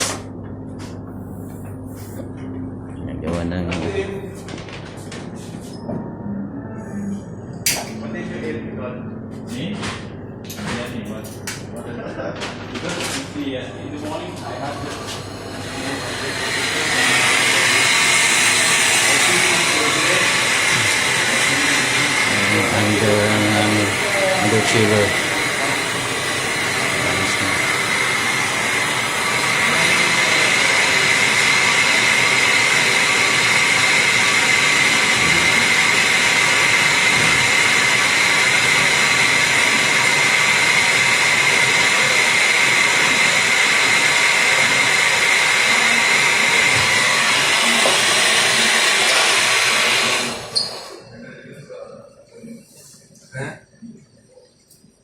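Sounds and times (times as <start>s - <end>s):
electric machine whining: 14.7s - 51.1s.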